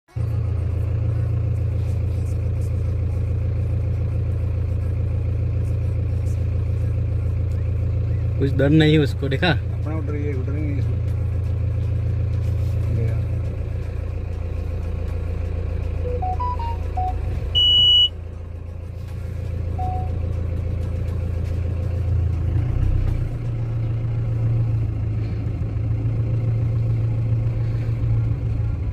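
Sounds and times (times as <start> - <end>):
vehicle engine rumbling: 0.1 - 28.9
high-pitched beep: 16.0 - 18.1, 19.8 - 20.2.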